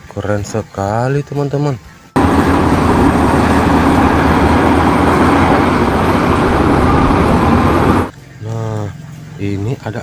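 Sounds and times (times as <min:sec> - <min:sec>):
heavy vehicle engine rumbling: 0:02.2 - 0:08.1.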